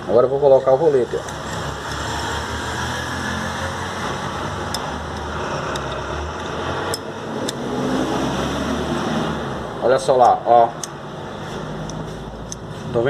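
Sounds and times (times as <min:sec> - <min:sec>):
small metallic clicks: 0:04.7 - 0:07.6, 0:10.2 - 0:11.0, 0:11.8 - 0:12.7.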